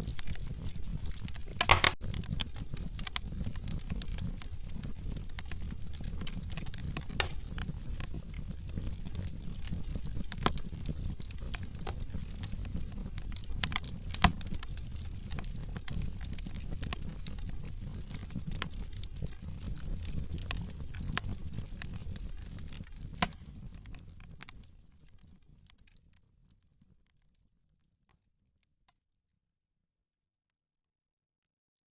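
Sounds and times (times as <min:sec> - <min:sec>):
wood fire crackling: 0:00.0 - 0:27.4.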